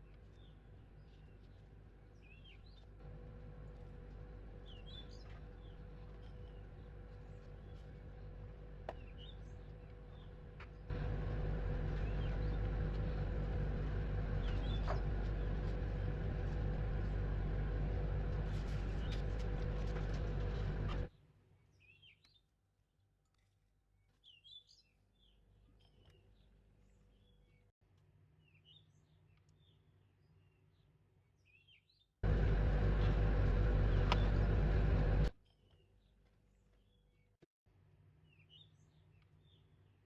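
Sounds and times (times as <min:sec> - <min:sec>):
small birds chirping: 0:00.0 - 0:03.0, 0:03.9 - 0:10.9, 0:11.5 - 0:17.2, 0:24.0 - 0:27.7
low steady hum: 0:00.0 - 0:21.1, 0:32.2 - 0:35.4
loud mechanical noise: 0:03.0 - 0:21.1, 0:32.2 - 0:35.4.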